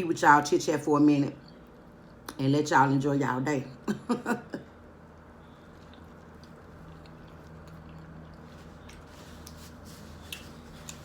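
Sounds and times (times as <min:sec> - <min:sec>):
faint chewing and mouth clicks: 0:05.2 - 0:11.0.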